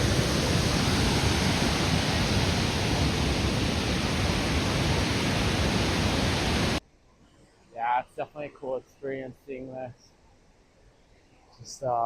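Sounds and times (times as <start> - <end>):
waterfall roaring: 0.0 - 6.8.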